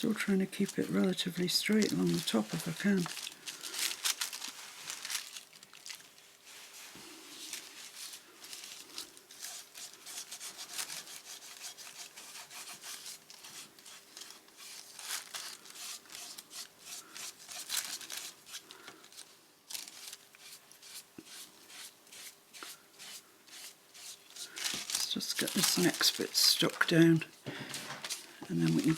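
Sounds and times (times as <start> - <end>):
paper rubbing strokes: 6.4 - 18.7, 19.8 - 27.2.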